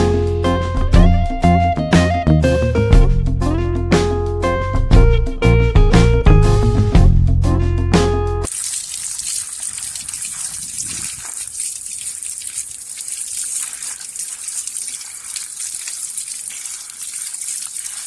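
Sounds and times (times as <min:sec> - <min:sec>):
water gushing: 0:08.5 - 0:18.0.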